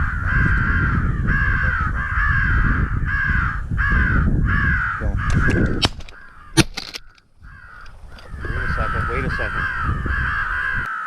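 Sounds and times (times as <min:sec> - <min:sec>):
crows cawing: 0:00.0 - 0:11.0
sharp crack: 0:05.3 - 0:07.2.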